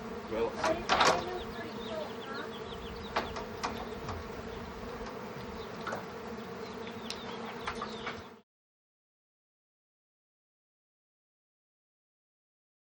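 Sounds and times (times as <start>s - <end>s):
bees buzzing: 0.0s - 8.4s
faint clicks: 7.0s - 7.2s.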